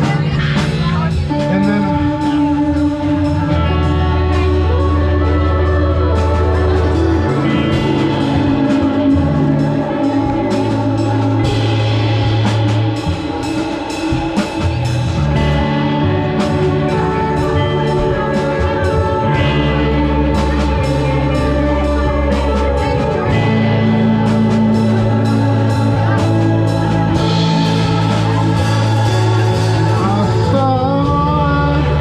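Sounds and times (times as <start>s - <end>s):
bass notes: 0.0s - 32.0s
electric guitar: 0.0s - 32.0s.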